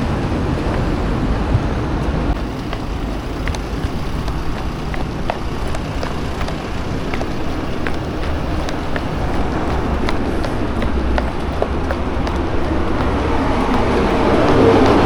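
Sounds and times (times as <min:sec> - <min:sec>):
light running footfalls: 0:00.0 - 0:15.0
wind rushing over microphone: 0:00.0 - 0:15.0.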